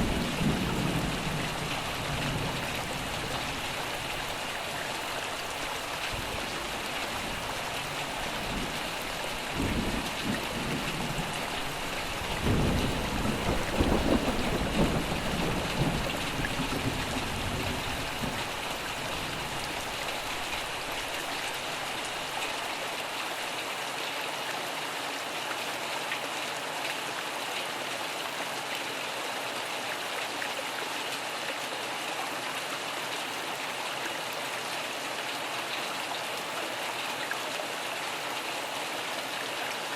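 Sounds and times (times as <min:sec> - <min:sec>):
steady rain: 0:00.0 - 0:39.9
thunder rumbling: 0:09.4 - 0:18.6.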